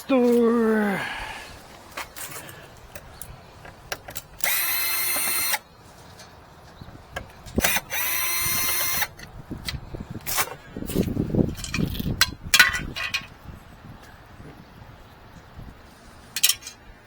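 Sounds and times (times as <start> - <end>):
power drill running: 4.4 - 5.6, 7.6 - 9.1.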